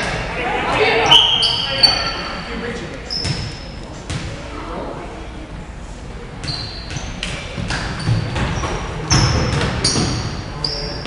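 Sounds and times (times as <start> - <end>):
sneakers squeaking on floor: 1.0 - 4.3, 6.4 - 11.0
basketball bouncing: 6.4 - 10.4.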